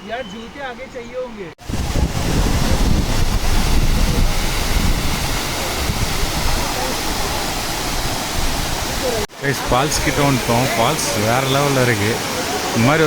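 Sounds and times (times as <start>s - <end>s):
wind on microphone: 1.6s - 9.2s
waterfall rushing: 1.6s - 13.0s.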